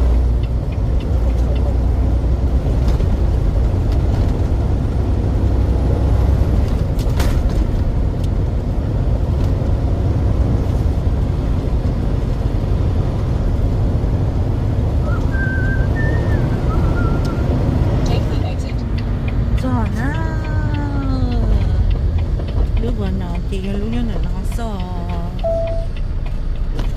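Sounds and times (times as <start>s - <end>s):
truck engine and tyres droning: 0.0s - 26.9s
faint wavering high tone: 25.4s - 25.9s.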